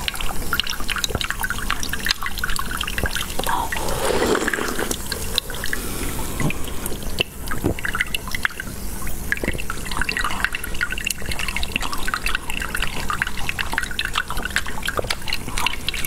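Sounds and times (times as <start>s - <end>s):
sauce dripping into liquid: 0.0s - 3.8s, 5.1s - 16.0s.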